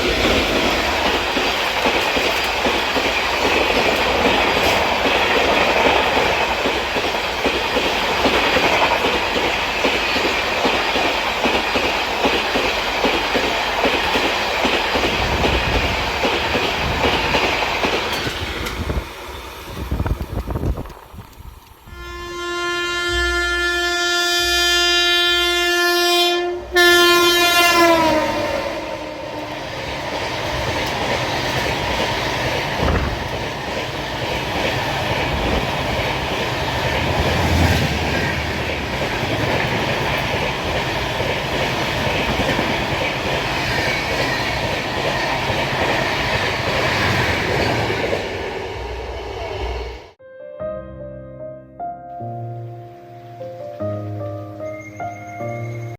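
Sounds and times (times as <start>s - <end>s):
train wheels clattering on track: 0.0s - 21.8s, 29.4s - 49.5s
locomotive horn: 21.9s - 29.8s.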